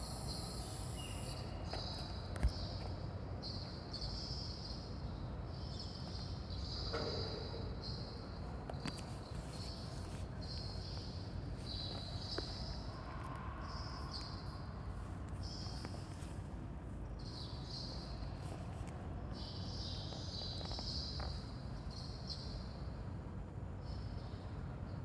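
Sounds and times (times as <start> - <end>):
insects chirping: 0.0 - 4.5.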